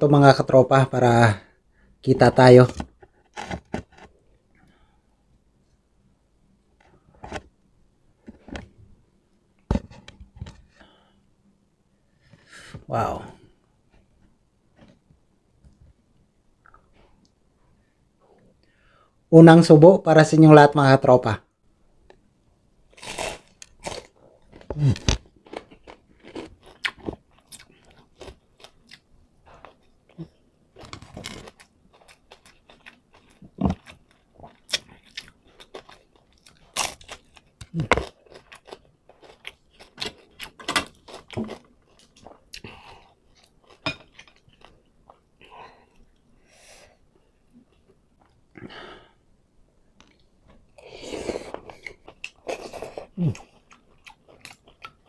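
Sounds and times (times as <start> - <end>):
chewing crispy fried fish: 22.9 - 45.2, 51.5 - 55.0.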